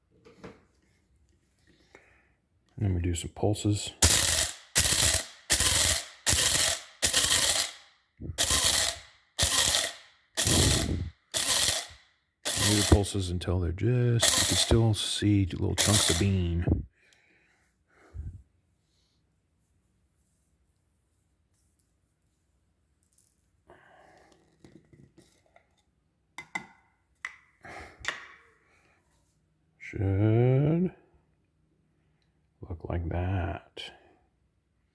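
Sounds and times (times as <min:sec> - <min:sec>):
electric coffee grinder grinding beans: 0:04.0 - 0:07.8, 0:08.4 - 0:13.2, 0:14.2 - 0:14.9, 0:15.8 - 0:16.4.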